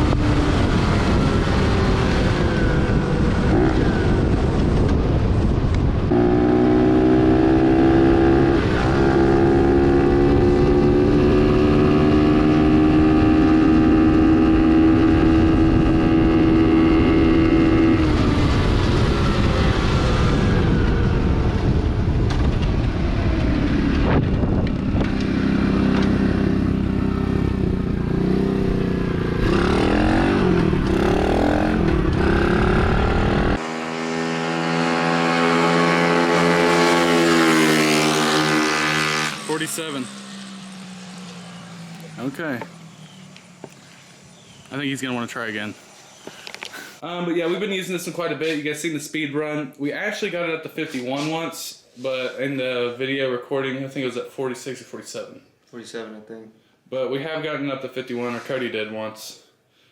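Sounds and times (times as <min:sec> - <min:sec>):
wind noise: 0:00.0 - 0:34.2
motorcycle engine running hard: 0:00.0 - 0:44.7.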